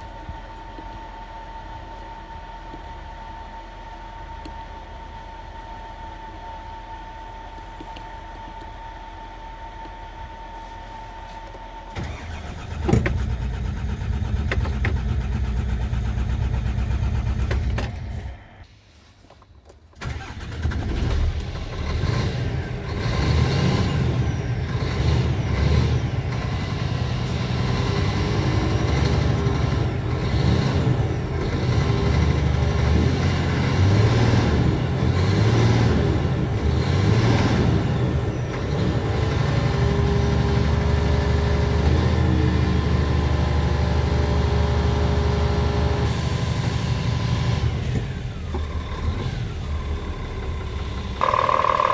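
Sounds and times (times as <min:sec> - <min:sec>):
diesel engine cranking and starting: 0:11.9 - 0:18.6, 0:20.0 - 0:51.9
diesel engine idling: 0:48.1 - 0:51.9.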